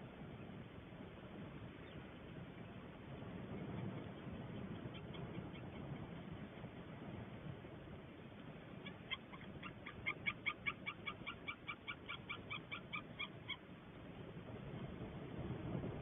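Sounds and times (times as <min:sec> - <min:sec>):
eagle yelping calls: 0:08.8 - 0:13.7.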